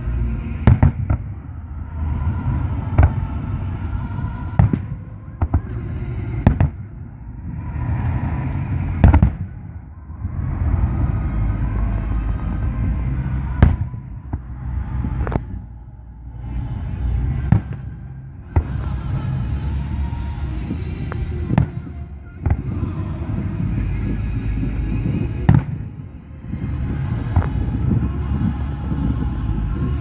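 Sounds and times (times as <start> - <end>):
continuous low rumble: 0.0 - 30.0
fireworks bursting bangs: 0.5 - 1.3, 4.4 - 6.9, 8.8 - 9.7, 11.8 - 15.6, 20.6 - 30.0.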